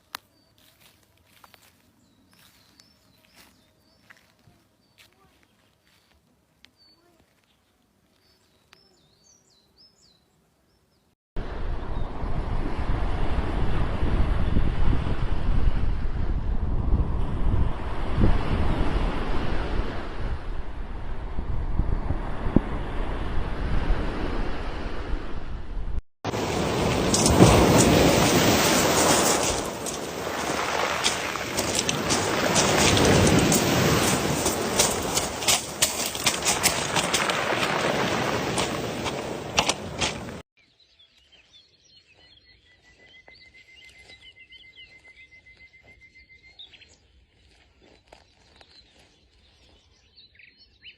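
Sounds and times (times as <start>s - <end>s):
wind: 0.0s - 50.9s
sea surf washing in: 11.4s - 16.2s, 26.3s - 40.4s
high bird chirps: 40.6s - 47.0s.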